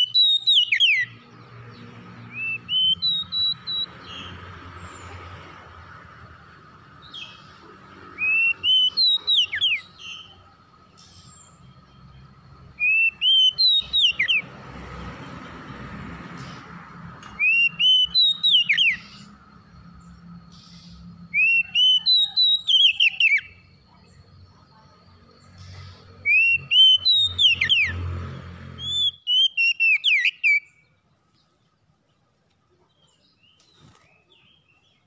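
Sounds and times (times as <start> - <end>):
bird singing whistled phrases: 0.0 - 1.2, 2.3 - 3.9, 8.2 - 10.4, 12.8 - 14.4, 17.3 - 19.4, 20.6 - 23.7, 26.2 - 28.0, 28.8 - 30.8.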